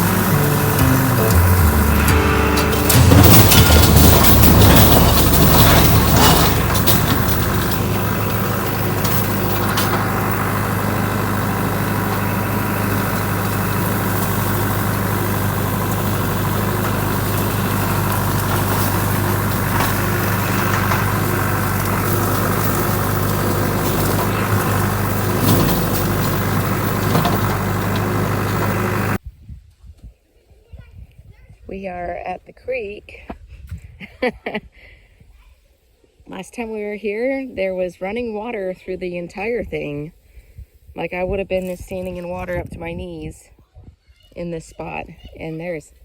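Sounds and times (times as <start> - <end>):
tractor diesel engine droning: 0.0 - 29.2
road and wind noise: 0.0 - 32.0, 39.4 - 44.0.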